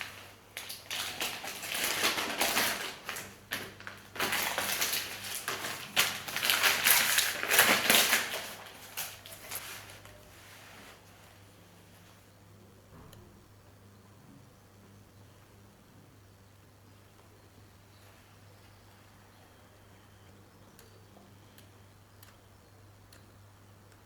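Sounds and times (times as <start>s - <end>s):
packaging rustling and crinkling: 0.0s - 11.4s
small clicks: 20.8s - 22.4s.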